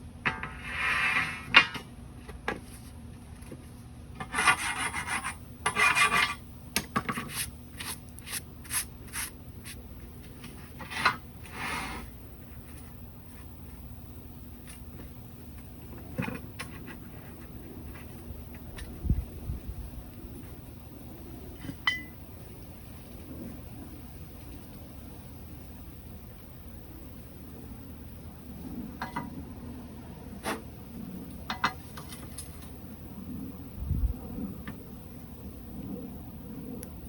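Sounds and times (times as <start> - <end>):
scraping on metal: 0.3 - 1.9, 4.2 - 13.6.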